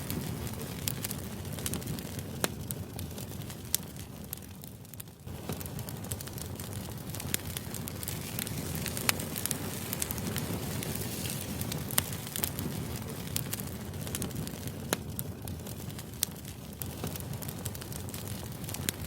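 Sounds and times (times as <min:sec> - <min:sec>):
fire crackling with pops: 0:00.0 - 0:19.0
low fire rumble: 0:00.0 - 0:19.0.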